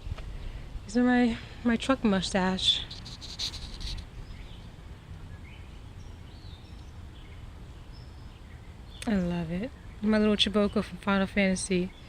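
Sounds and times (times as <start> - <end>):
rustling noise: 2.7 - 4.2.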